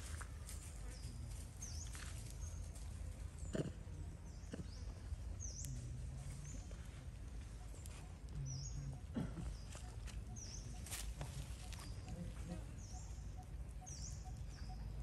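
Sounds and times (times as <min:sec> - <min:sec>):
small bird chirping: 0:09.6 - 0:15.0.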